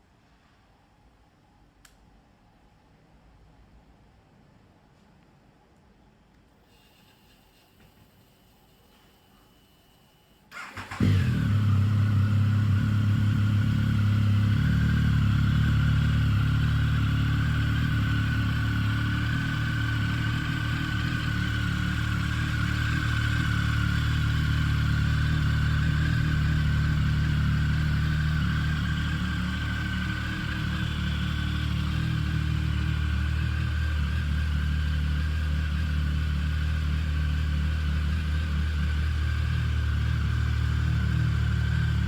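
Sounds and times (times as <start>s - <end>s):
motorcycle starter cranking: 10.5s - 11.8s
motorcycle engine idling: 10.6s - 42.0s.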